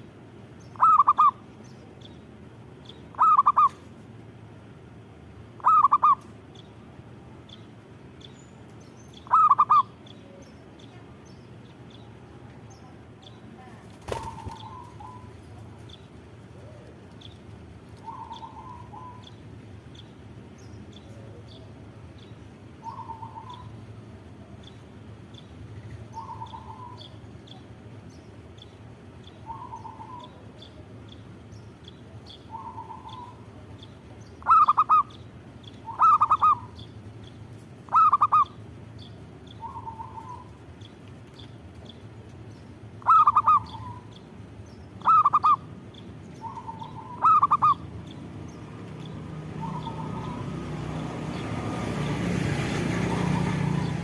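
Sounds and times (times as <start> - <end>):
doves cooing: 0.8 - 1.4, 3.1 - 3.8, 5.6 - 6.2, 9.2 - 10.0, 13.8 - 19.4, 22.8 - 23.8, 26.2 - 27.2, 29.5 - 30.6, 32.5 - 33.6, 34.4 - 35.2, 35.8 - 36.8, 37.9 - 38.6, 39.6 - 40.6, 43.0 - 44.2, 45.0 - 48.0, 48.9 - 51.6.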